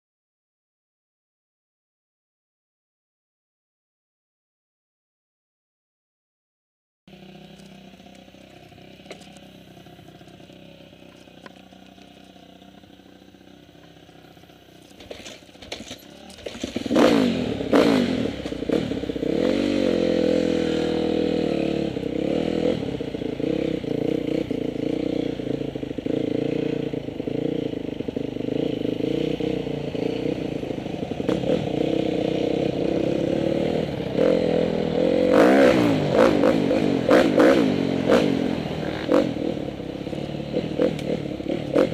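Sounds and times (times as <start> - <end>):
dirt bike engine revving: 12.1 - 41.9.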